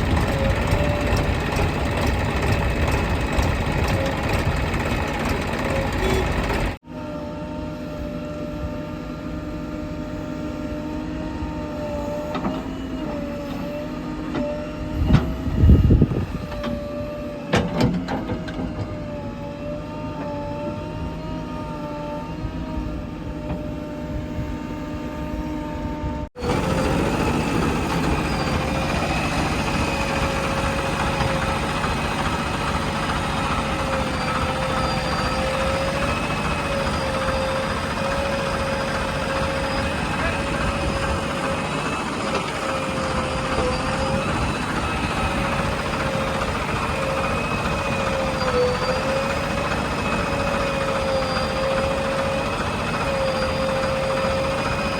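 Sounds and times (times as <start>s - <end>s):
heavy diesel engine running: 0.0s - 6.8s, 26.4s - 54.9s.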